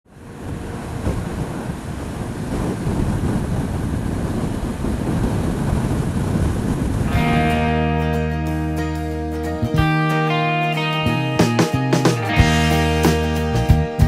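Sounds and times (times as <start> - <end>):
wind buffeting microphone: 0.1 - 8.7.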